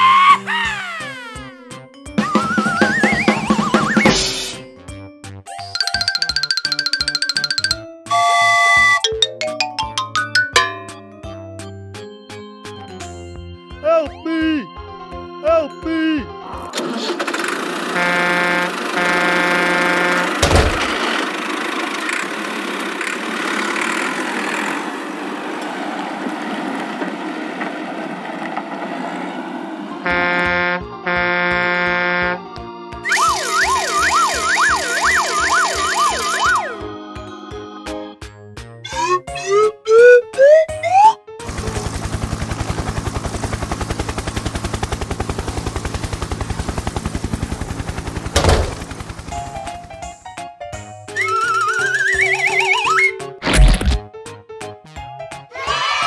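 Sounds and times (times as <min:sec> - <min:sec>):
cartoon vehicle engine rumble: 0:00.0 - 0:04.5, 0:16.6 - 0:32.4, 0:38.8 - 0:50.4
rising whistle-like glides: 0:02.2 - 0:04.2, 0:51.1 - 0:53.3
rapid mechanical rattle: 0:16.8 - 0:18.0, 0:20.4 - 0:24.7, 0:41.5 - 0:49.9.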